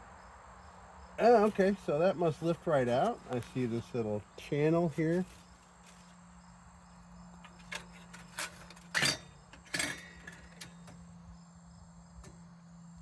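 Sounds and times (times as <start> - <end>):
sheet metal clinking and knocking: 7.5 - 11.0.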